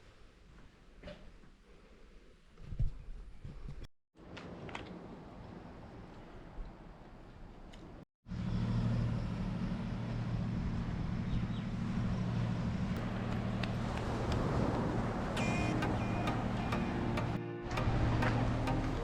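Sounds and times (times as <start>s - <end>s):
road and wind noise: 3.6s - 19.0s
motorcycle engine humming: 8.4s - 19.0s.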